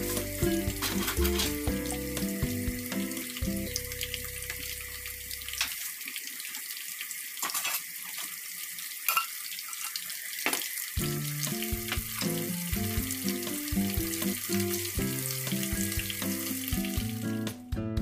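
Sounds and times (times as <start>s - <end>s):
background music: 0.0s - 5.2s, 11.0s - 18.0s
food sizzling in a hot pan: 0.0s - 17.6s.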